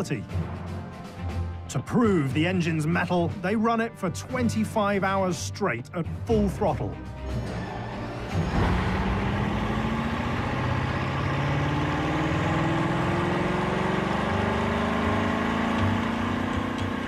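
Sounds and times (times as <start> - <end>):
car engine on test bench: 7.3 - 17.0.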